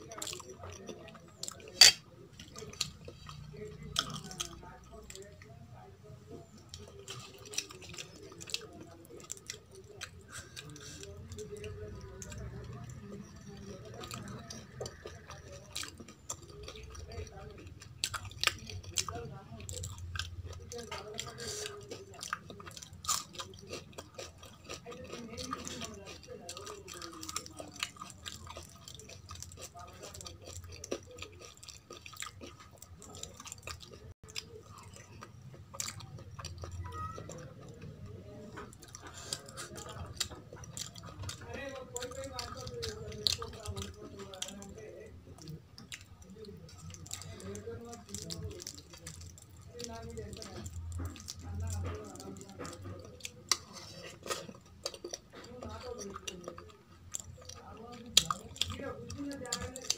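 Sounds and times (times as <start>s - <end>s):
chewing: 0.0s - 59.9s
hand mixing food on steel plate: 47.4s - 56.7s.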